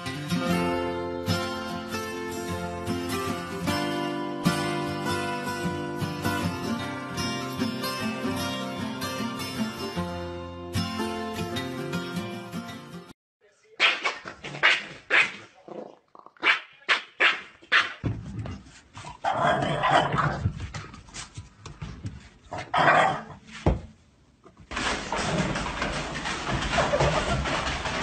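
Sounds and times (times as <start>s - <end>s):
dog barking: 13.8s - 15.4s, 16.4s - 18.0s.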